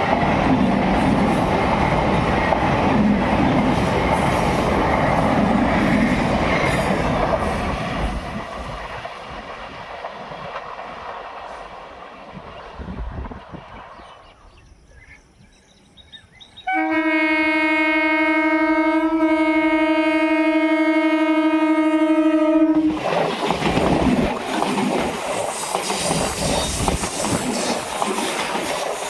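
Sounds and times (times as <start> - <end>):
train wheels rattling over rails: 0.0 - 14.0, 22.9 - 29.0
train horn long blast: 16.6 - 22.9.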